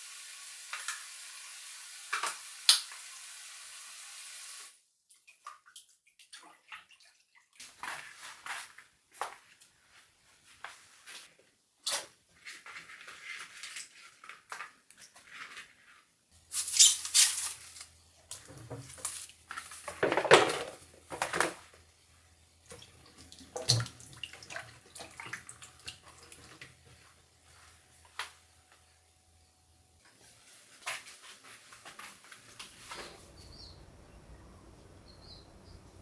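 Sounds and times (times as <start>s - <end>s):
water running in sink: 0.0s - 4.7s
low steady hum: 32.8s - 36.0s.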